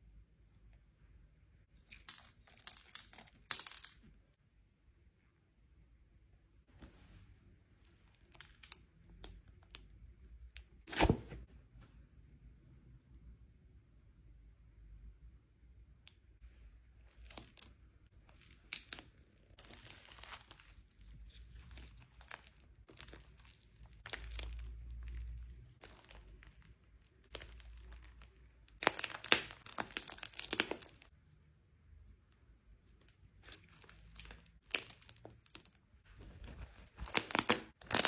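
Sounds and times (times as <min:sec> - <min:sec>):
slime crackling and popping: 0:17.1 - 0:20.8, 0:21.5 - 0:31.1, 0:33.5 - 0:35.9, 0:37.0 - 0:38.0.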